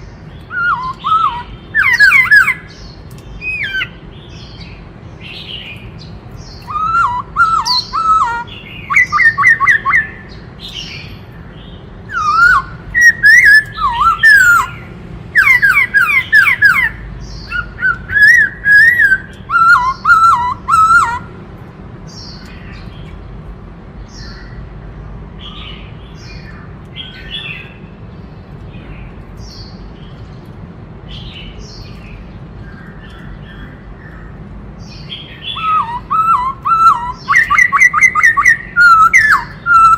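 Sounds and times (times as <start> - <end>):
soft bird calls: 0.0 - 23.4, 25.4 - 39.9
bird singing whistled phrases: 0.5 - 2.8, 3.4 - 3.9, 6.5 - 11.0, 12.1 - 14.8, 15.4 - 21.3, 35.2 - 39.9.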